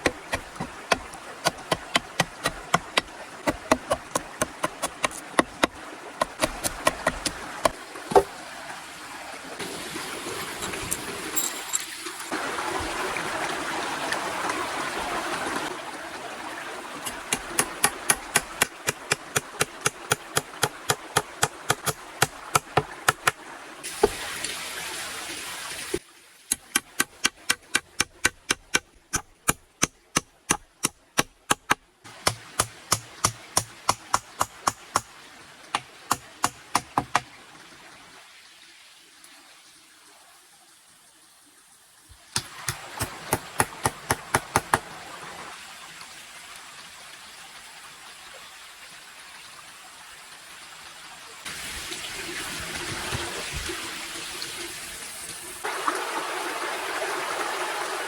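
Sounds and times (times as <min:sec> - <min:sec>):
hand tool striking wood: 0:00.0 - 0:08.3, 0:17.1 - 0:23.4, 0:26.5 - 0:35.1, 0:35.7 - 0:37.3, 0:42.4 - 0:44.9
running water: 0:00.0 - 0:30.2, 0:32.1 - 0:58.0.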